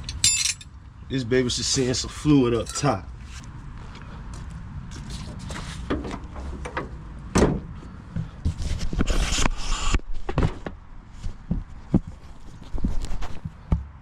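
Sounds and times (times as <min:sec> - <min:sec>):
clunks and knocks on a truck: 0:05.9 - 0:07.8.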